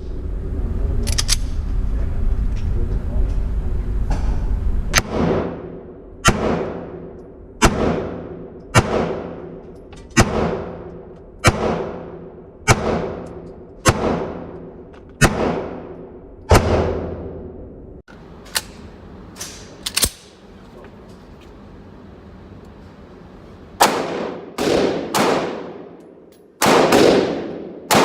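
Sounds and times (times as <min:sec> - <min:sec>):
gunshots with echoing tail: 0:05.0 - 0:09.6, 0:10.2 - 0:14.6, 0:15.2 - 0:17.4, 0:23.8 - 0:26.0, 0:26.6 - 0:28.0.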